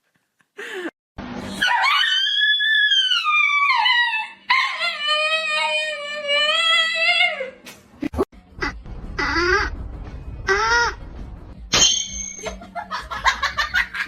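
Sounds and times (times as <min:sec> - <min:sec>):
animal howling: 0:01.6 - 0:07.6.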